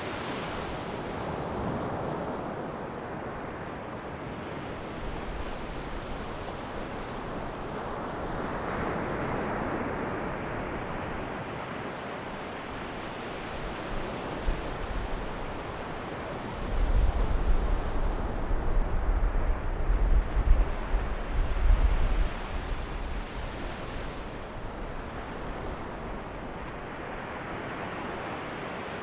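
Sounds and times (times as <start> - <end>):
wind buffeting microphone: 16.6 - 27.2.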